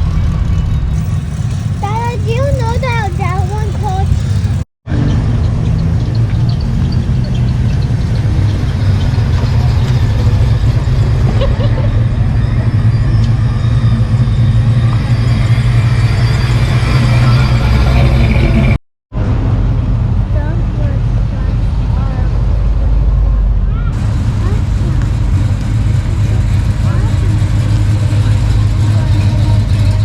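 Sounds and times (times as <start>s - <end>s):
car engine idling: 0.0s - 4.6s, 19.8s - 30.0s
faint voices talking: 23.6s - 30.0s.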